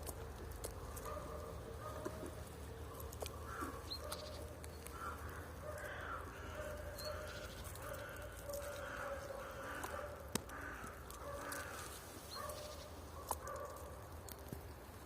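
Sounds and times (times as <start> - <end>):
crows cawing: 3.3 - 12.8.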